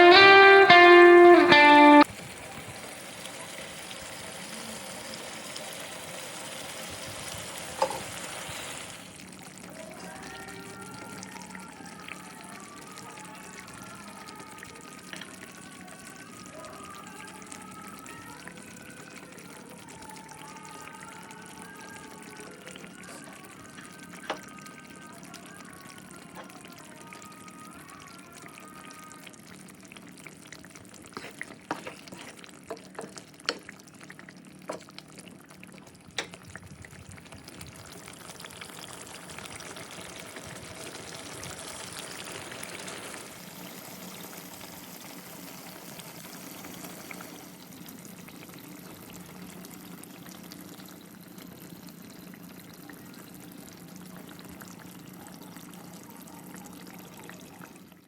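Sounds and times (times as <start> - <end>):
food sizzling in a pan: 0.0 - 35.6, 37.2 - 58.0.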